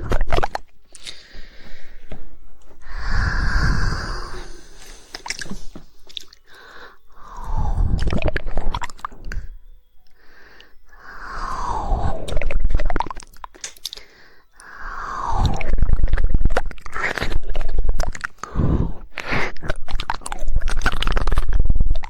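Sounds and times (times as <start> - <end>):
breathy wet mouth noises: 0.0 - 22.0
tongue clicks: 4.0 - 6.6, 7.2 - 22.0.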